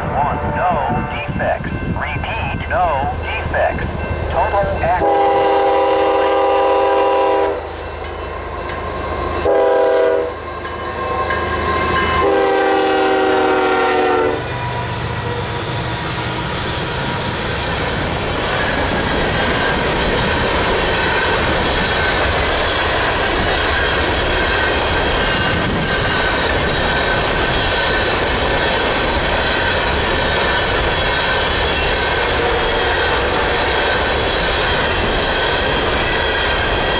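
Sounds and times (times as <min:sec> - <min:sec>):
locomotive air horn: 0:00.0 - 0:01.1, 0:05.0 - 0:07.7, 0:09.4 - 0:14.5
wheels clattering on rails: 0:16.0 - 0:36.9.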